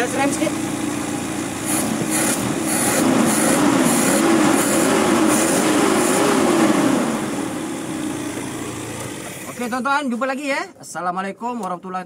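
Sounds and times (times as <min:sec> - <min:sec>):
petrol engine revving: 0:00.0 - 0:09.9.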